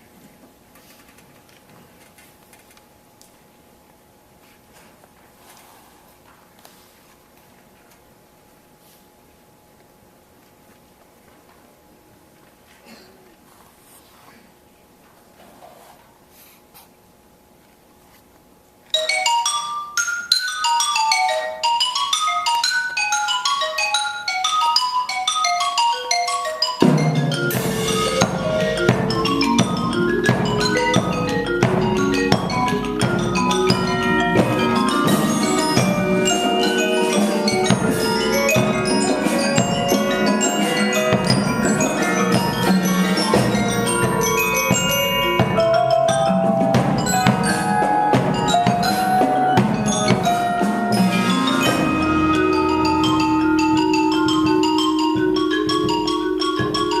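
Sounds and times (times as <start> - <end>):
mallet percussion melody: 19.0 - 57.0.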